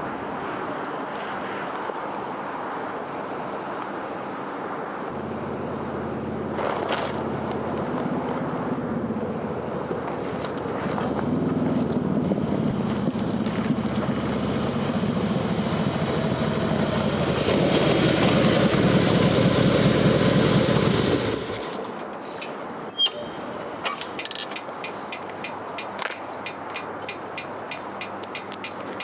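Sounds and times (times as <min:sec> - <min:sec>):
vehicle engine running: 0:05.2 - 0:21.6
sharp clicks: 0:23.8 - 0:29.0.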